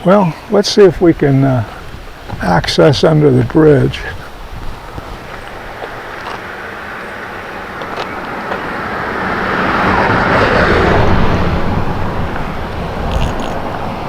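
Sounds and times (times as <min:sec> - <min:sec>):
car passing by: 0:05.1 - 0:14.0.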